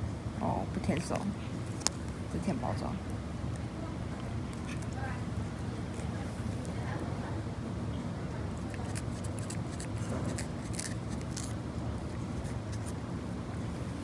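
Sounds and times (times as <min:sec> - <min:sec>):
cat licking wet clicks: 0:04.5 - 0:05.0, 0:08.5 - 0:13.0.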